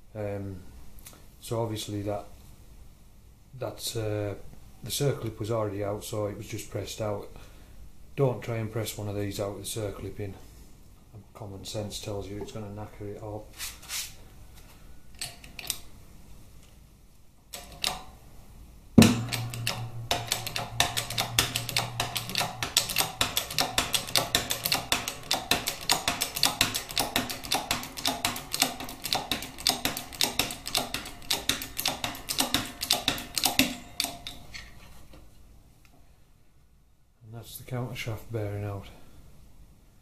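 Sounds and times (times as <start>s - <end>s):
sharp knock: 19.0s - 28.4s
pressing tool rapid clicks: 19.0s - 34.4s.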